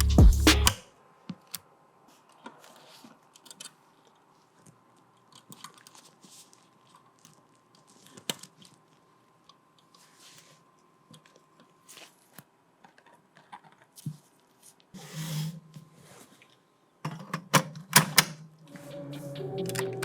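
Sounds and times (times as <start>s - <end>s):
background music: 0.0s - 0.8s, 18.6s - 20.0s
sharp click: 0.0s - 0.8s
small clicks and rustles: 1.3s - 14.9s.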